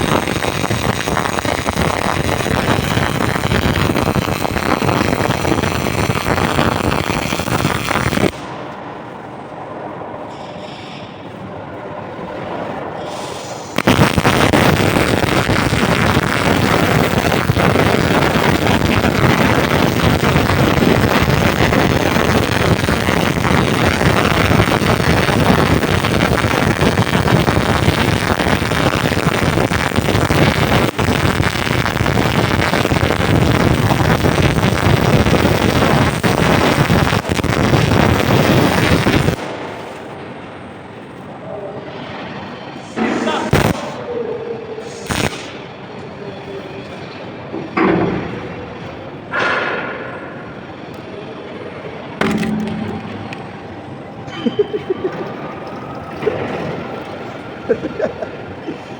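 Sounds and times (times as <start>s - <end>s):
arc welding crackling: 0.0s - 8.6s, 13.2s - 40.2s, 43.4s - 43.9s, 45.0s - 45.6s, 52.2s - 58.9s.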